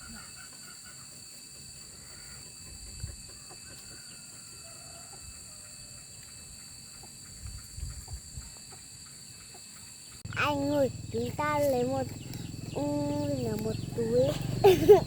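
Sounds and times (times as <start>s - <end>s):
faint chicken calls: 0.0s - 10.5s
high insect drone: 0.0s - 15.0s.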